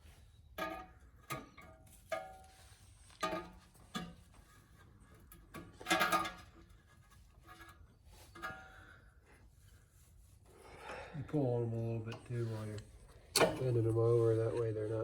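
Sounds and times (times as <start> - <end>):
metallic clicks of pins bent: 12.8 - 13.8.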